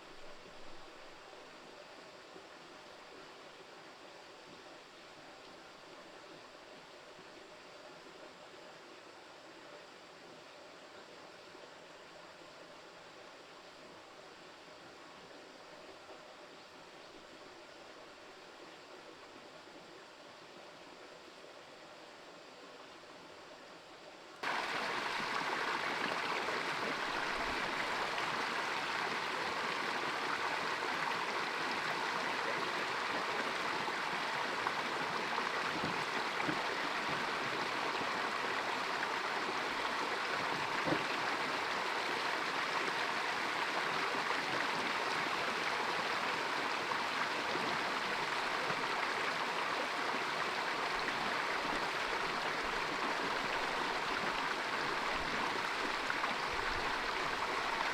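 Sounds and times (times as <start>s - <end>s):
running water flowing: 24.4s - 57.9s.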